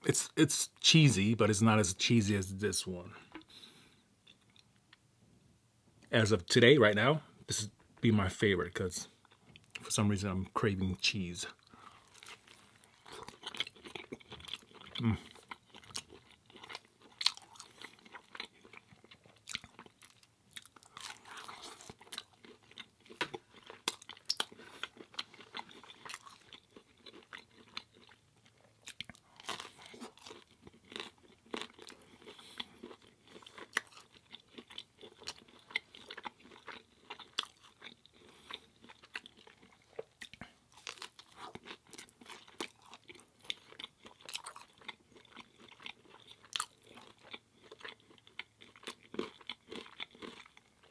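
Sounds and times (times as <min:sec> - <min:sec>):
person chewing crunchy pizza: 0:11.5 - 0:50.9.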